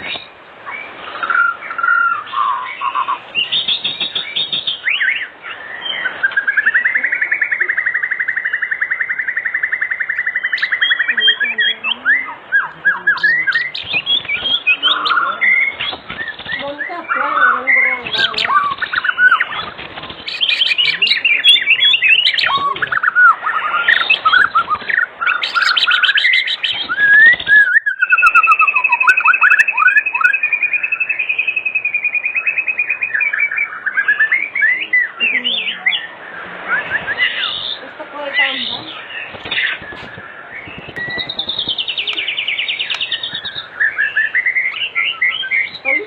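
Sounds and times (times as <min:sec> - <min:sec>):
songbird whistling and trilling: 0:00.0 - 0:46.0.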